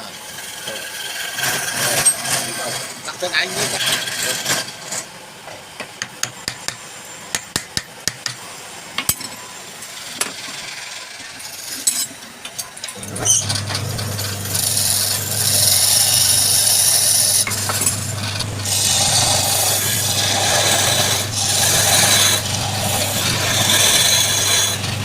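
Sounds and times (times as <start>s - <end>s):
turning tool scraping wood: 0.7s - 5.1s, 13.0s - 25.0s
wood lathe motor humming: 13.0s - 25.0s.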